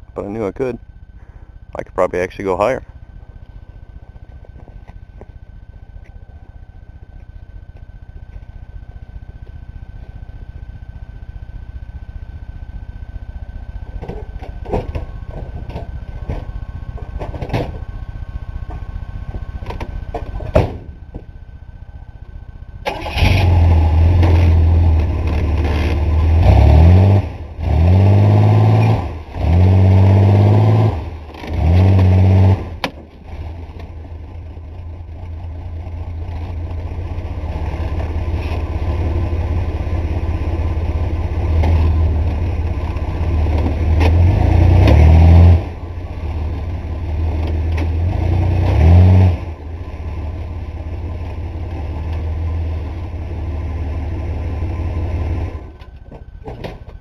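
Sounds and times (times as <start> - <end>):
pickup truck engine revving: 22.9 - 32.9, 40.9 - 51.3.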